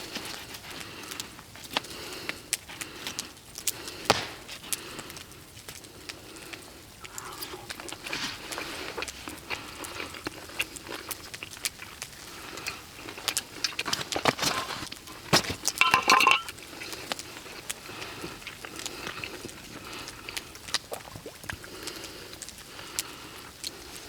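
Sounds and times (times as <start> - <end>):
metal cookware clinking and scraping: 14.4 - 16.5.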